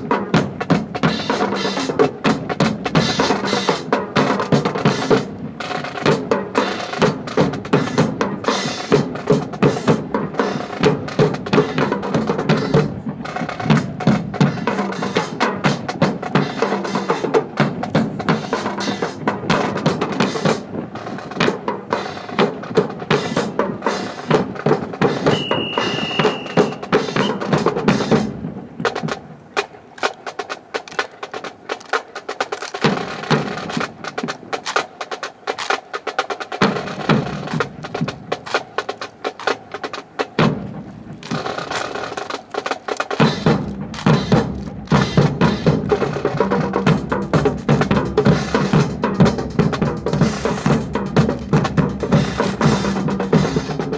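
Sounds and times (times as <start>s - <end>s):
snare drum cadences: 0.0s - 53.9s
high held tone: 25.2s - 27.5s.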